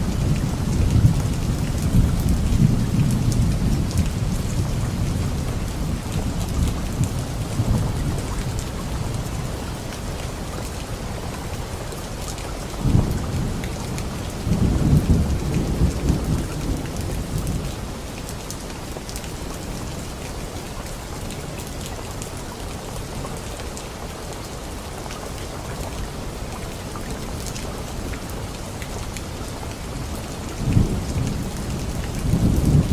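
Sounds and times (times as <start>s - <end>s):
rain falling on leaves: 0.0s - 32.9s
thunder crack and rumble: 12.8s - 17.8s, 30.6s - 32.9s.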